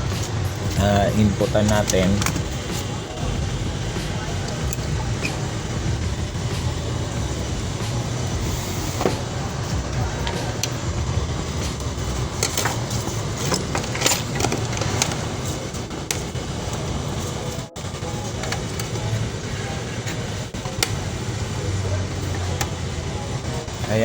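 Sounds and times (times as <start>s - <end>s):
cables and plugs clicking: 0.0s - 3.0s, 4.0s - 5.6s, 11.7s - 19.2s, 22.0s - 23.2s
low rumble: 0.0s - 13.4s.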